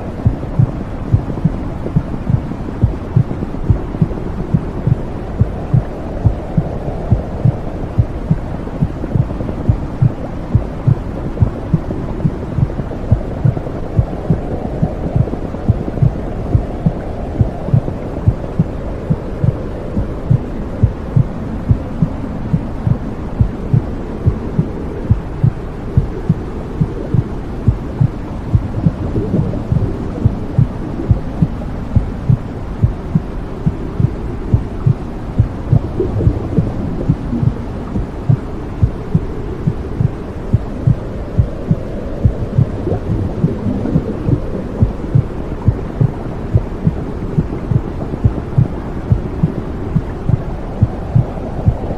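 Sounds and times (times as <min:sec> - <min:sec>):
muffled low whooshing rush: 0:00.0 - 0:51.9
steady heartbeat: 0:00.0 - 0:51.9.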